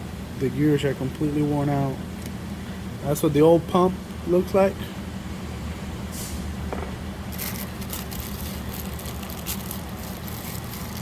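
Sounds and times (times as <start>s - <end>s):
rustling and clicks of small parts: 7.3s - 11.0s.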